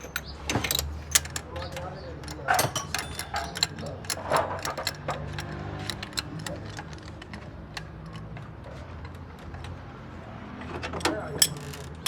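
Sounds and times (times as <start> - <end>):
metallic clicks of hand tools: 0.0 - 8.5, 10.9 - 12.0.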